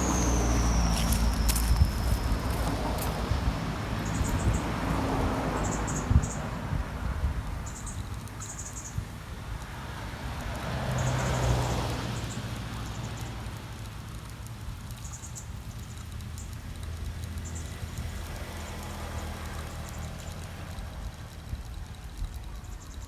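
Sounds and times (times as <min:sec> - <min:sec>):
high-pitched chirps: 0:00.0 - 0:02.9
vehicle passing: 0:00.0 - 0:07.2, 0:09.7 - 0:14.1, 0:17.0 - 0:22.3
traffic rumble: 0:00.0 - 0:23.0.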